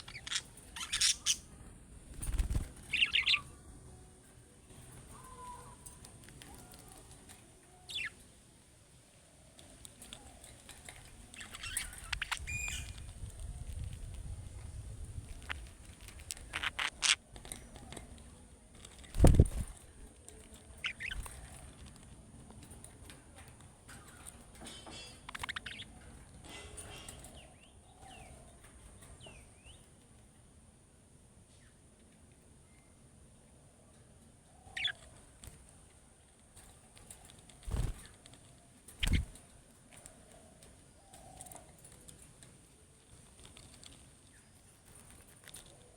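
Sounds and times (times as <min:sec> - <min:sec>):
budgerigars chirping: 0:00.0 - 0:01.4, 0:02.9 - 0:03.4, 0:07.9 - 0:08.1, 0:16.5 - 0:17.2, 0:20.8 - 0:21.3, 0:25.3 - 0:25.9, 0:34.8 - 0:35.0
faint scratching and clicks: 0:09.5 - 0:27.4, 0:33.9 - 0:45.9.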